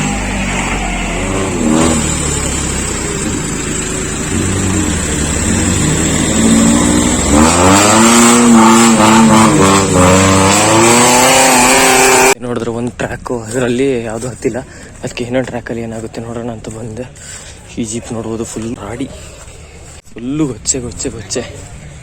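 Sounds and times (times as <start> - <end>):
off-road engine revving: 0.0 - 12.4.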